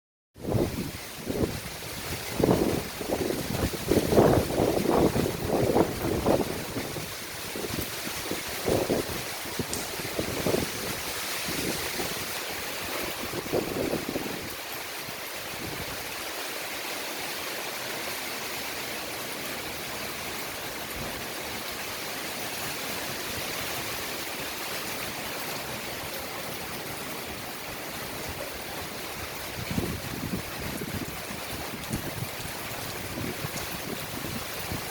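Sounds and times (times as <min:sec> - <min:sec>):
storm wind rushing: 0:00.4 - 0:14.6, 0:29.0 - 0:34.9.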